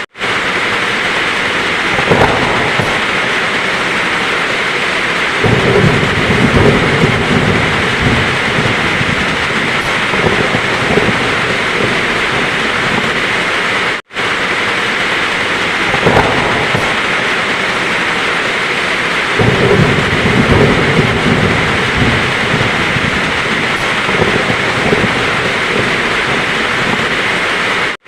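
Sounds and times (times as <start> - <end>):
heavy rain falling: 0.0 - 28.0
low rolling thunder: 0.0 - 28.0.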